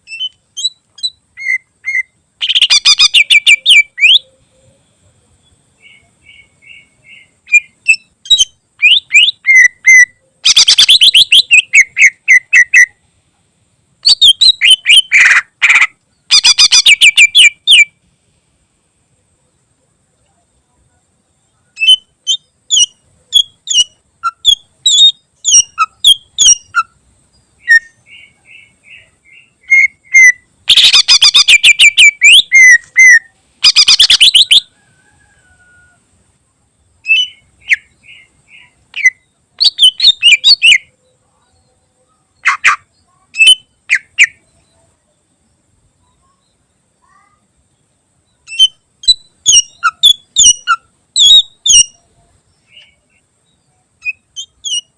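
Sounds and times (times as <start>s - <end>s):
harsh rapid rattling bird call: 0.0s - 4.2s, 6.3s - 12.9s, 14.0s - 17.9s, 29.6s - 34.7s, 37.1s - 40.9s, 42.4s - 44.4s, 48.4s - 52.0s
bird singing chirps and whistles: 0.0s - 4.4s, 5.4s - 13.0s, 14.0s - 17.9s, 21.8s - 27.0s, 27.6s - 34.7s, 37.0s - 40.9s, 43.4s - 44.8s, 48.4s - 52.0s, 52.6s - 54.9s.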